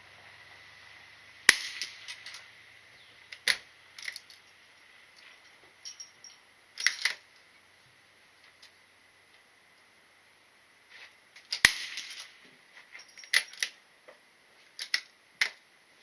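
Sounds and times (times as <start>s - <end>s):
gunshot: 1.5s - 2.1s, 11.6s - 12.3s
firearm action metallic clicks: 14.8s - 15.6s.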